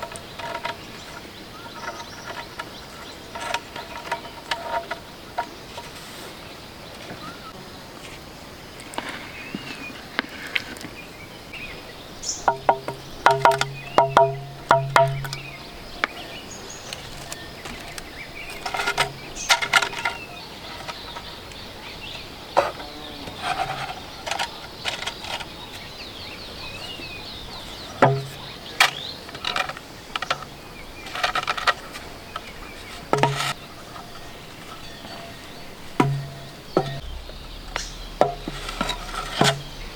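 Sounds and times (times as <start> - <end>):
knocks and clatters: 0.0 - 6.0, 12.5 - 16.2, 16.9 - 21.4, 28.0 - 39.9
faint bird chirps: 9.1 - 39.9.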